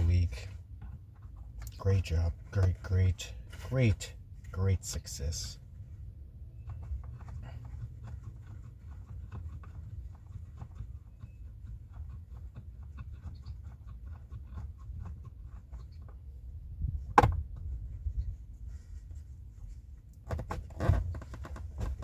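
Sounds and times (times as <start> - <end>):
low steady hum: 0.0 - 22.0
sharp knock: 17.2 - 17.4.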